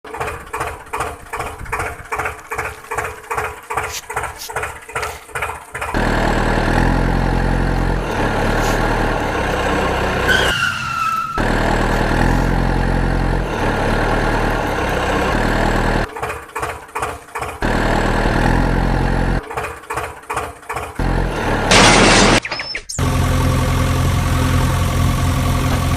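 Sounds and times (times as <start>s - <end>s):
engine chugging and running: 0.0s - 10.5s, 11.2s - 22.4s, 23.0s - 25.9s
falling squeal: 9.7s - 12.3s.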